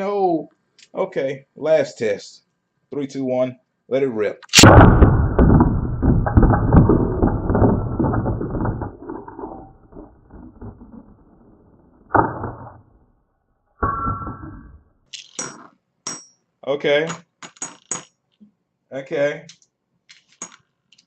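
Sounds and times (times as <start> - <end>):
spinning tops clattering in plastic stadium: 15.1 - 16.2, 17.1 - 18.2, 20.1 - 21.0.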